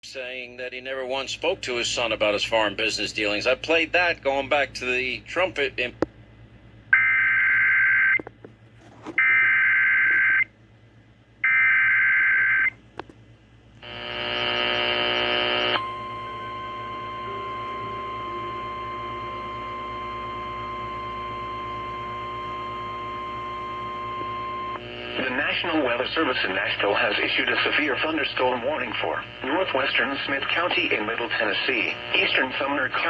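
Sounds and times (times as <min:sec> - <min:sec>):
steady warning tone: 0:13.8 - 0:33.0.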